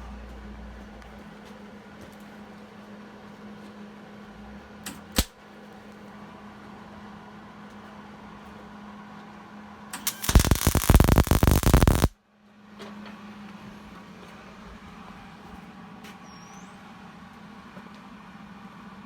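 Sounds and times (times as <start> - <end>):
welding arc crackling: 10.0 - 12.1
low hum: 10.1 - 12.1.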